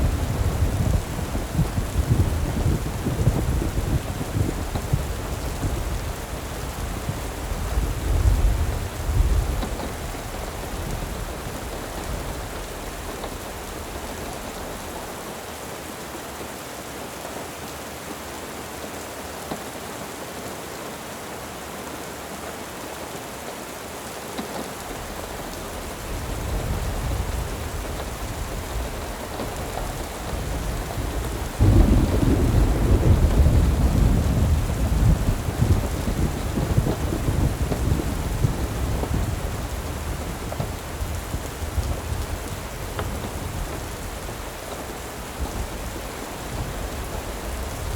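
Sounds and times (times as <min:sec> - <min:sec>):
thunder rumbling: 0:00.0 - 0:15.3, 0:24.9 - 0:47.9
steady rain: 0:00.0 - 0:47.9.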